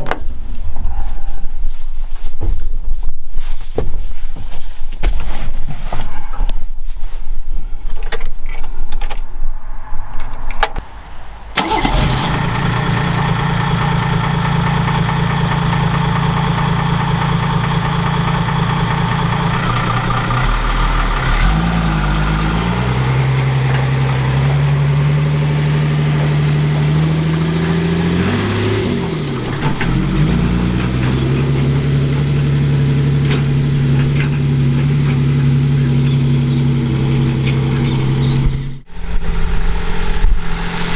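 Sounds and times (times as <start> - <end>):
vehicle engine running: 10.9 - 38.9.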